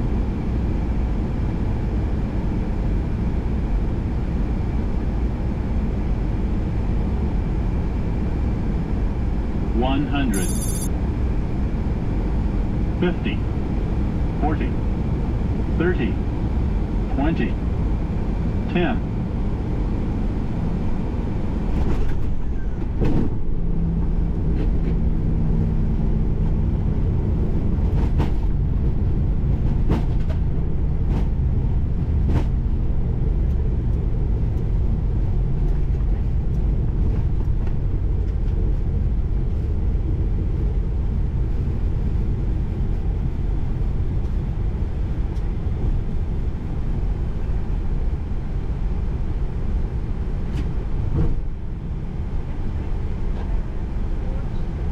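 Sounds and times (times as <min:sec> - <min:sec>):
low hum: 0:00.0 - 0:29.7
wheels rumbling on runway: 0:00.0 - 0:54.9.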